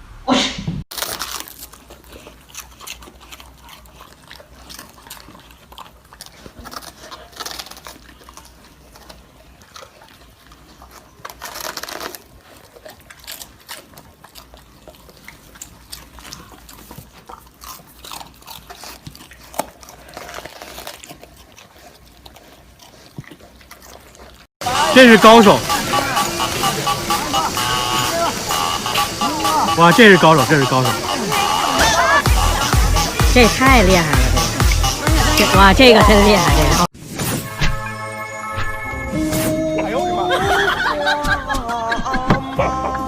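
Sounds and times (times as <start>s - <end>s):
dog chewing and crunching: 0.9s - 36.9s.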